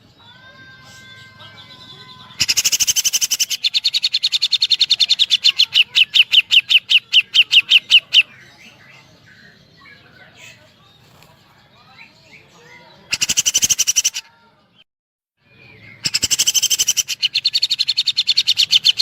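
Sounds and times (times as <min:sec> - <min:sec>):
bird call of sharp notes: 0:15.4 - 0:19.0.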